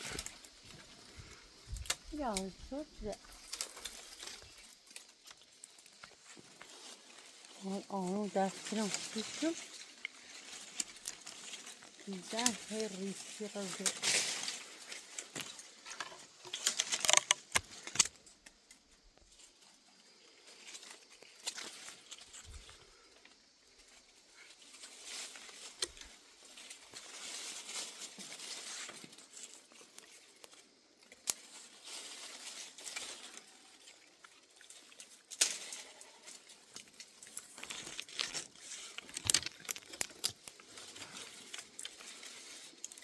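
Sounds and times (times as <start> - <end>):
rustling and crinkling: 0.0 - 43.0
sharp clicks and cracks: 13.8 - 18.8, 36.7 - 40.6.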